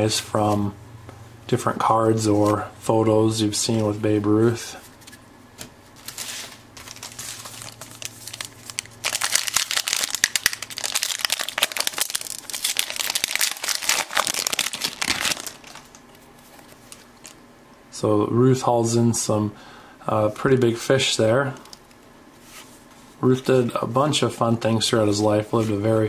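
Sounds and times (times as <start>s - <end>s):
plastic wrapper crinkling: 6.0s - 17.4s.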